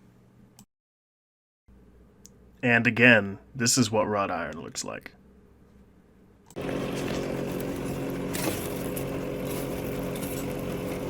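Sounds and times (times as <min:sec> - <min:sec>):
electric shop machine whirring: 0:06.6 - 0:11.0.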